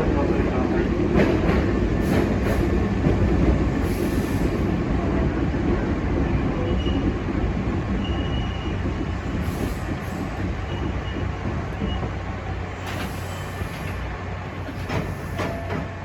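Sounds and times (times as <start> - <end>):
electric train rumbling on track: 0.0 - 16.0
high wheel squeals: 8.0 - 8.8.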